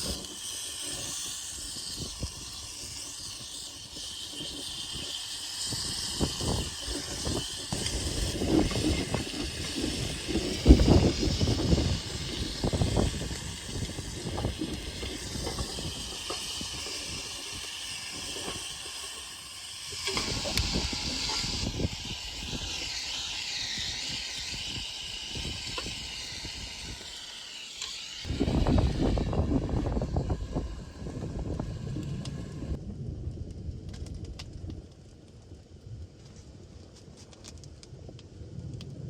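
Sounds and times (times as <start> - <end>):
fire crackles and knocks: 0.0 - 22.9, 28.3 - 39.0
steak sizzling over campfire: 0.0 - 32.8.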